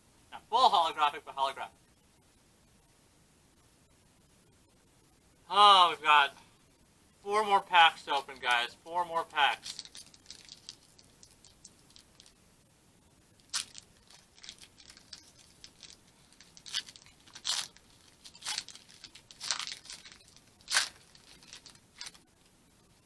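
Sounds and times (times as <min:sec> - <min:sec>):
foil wrapper crinkling and tearing: 0:09.5 - 0:12.3, 0:13.4 - 0:22.2.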